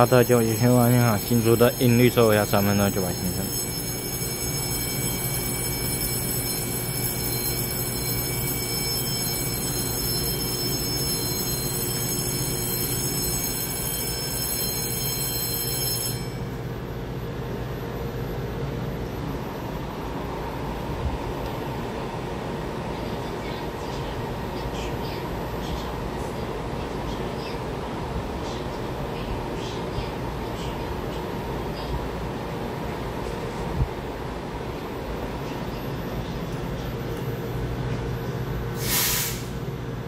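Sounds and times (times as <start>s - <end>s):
train low rumble: 0.0s - 40.0s.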